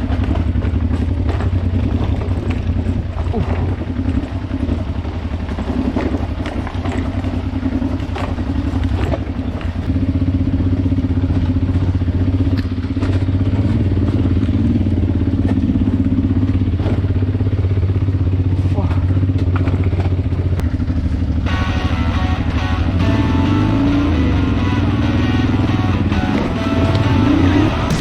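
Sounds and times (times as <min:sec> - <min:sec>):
motorcycle engine running: 0:00.0 - 0:28.0
knocks and clatter: 0:26.1 - 0:28.0.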